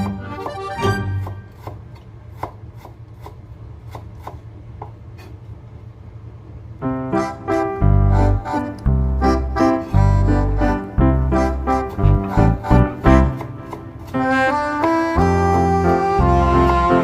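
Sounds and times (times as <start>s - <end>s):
upbeat keyboard and accordion music: 0.0s - 1.5s, 6.9s - 17.0s
knife chopping on cutting board: 1.2s - 4.4s, 13.1s - 14.3s.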